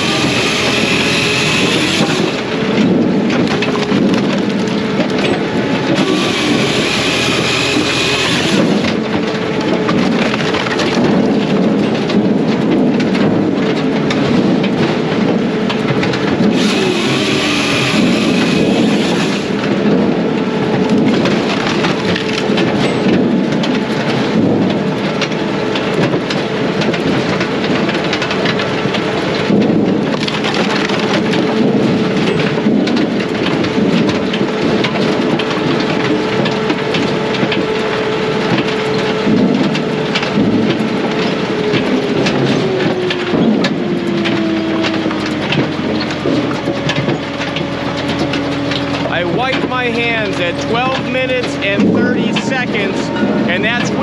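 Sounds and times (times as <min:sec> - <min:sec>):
firewood processor whining: 0:00.0 - 0:54.0.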